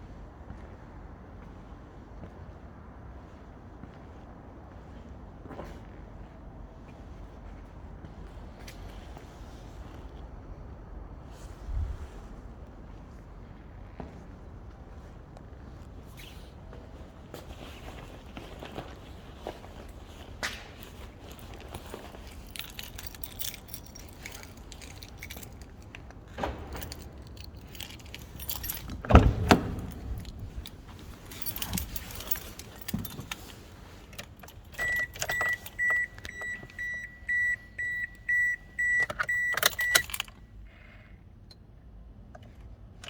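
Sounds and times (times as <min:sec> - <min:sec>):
keys jangling: 0:19.4 - 0:40.4
car warning chime beeping: 0:34.8 - 0:40.2.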